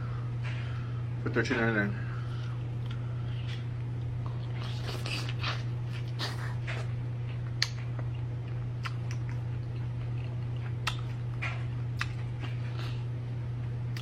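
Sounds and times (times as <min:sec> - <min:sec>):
steady low hum: 0:00.0 - 0:14.0
close-up chewing: 0:02.3 - 0:13.1.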